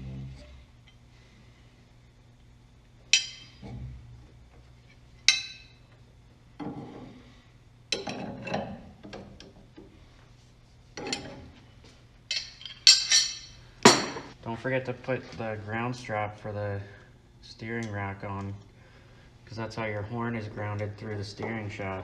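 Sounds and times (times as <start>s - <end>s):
metal tools clinking and knocking: 3.1s - 3.6s, 5.3s - 5.8s, 12.3s - 14.3s.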